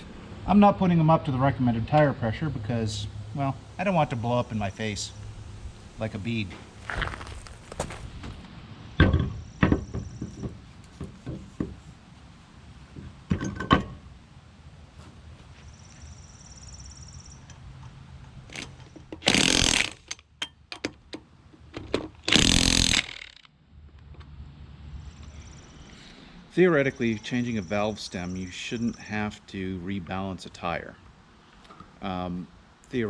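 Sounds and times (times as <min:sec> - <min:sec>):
tools clicking and knocking: 0:17.5 - 0:23.5.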